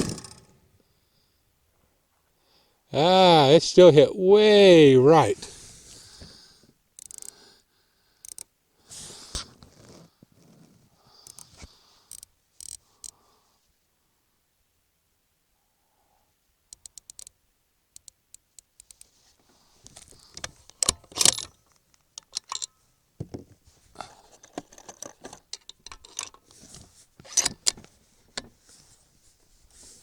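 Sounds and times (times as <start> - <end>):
rifle bolt clicks and clunks: 20.0 - 23.6, 27.2 - 28.5.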